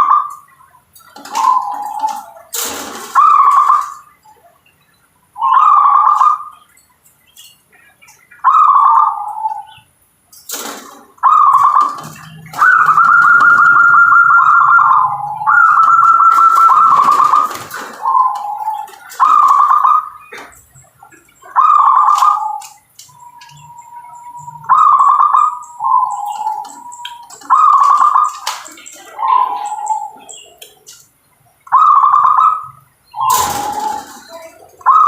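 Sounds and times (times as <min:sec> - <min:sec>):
dove cooing: 0:00.0 - 0:04.6, 0:05.4 - 0:06.6, 0:08.4 - 0:09.8, 0:10.6 - 0:31.0, 0:31.7 - 0:35.0.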